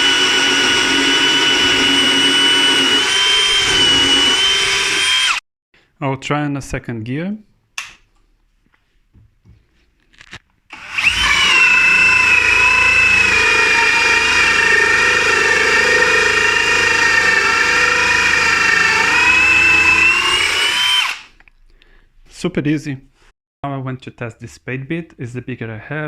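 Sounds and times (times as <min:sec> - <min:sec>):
drill whining through wood: 0:00.0 - 0:05.4, 0:10.7 - 0:21.4.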